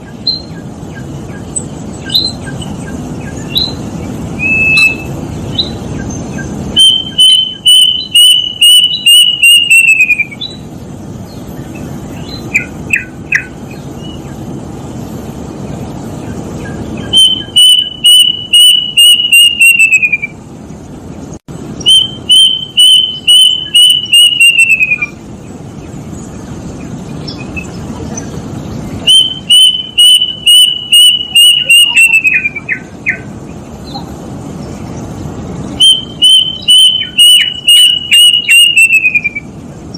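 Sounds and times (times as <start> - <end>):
cuckoo whistled song: 0.0 - 10.7, 12.2 - 14.2, 16.6 - 20.4, 21.8 - 25.2, 29.0 - 34.1, 35.8 - 39.6.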